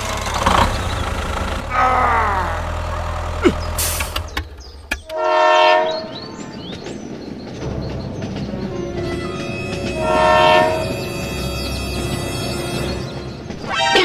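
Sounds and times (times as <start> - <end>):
train horn blast: 5.1 - 6.2, 9.0 - 13.0.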